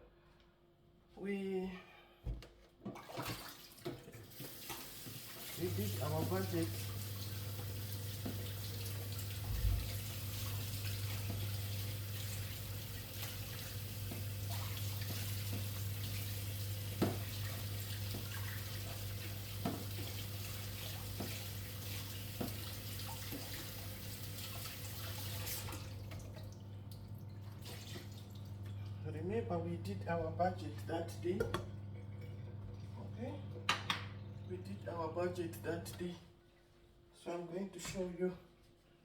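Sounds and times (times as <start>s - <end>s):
water running from tap: 3.0s - 28.9s.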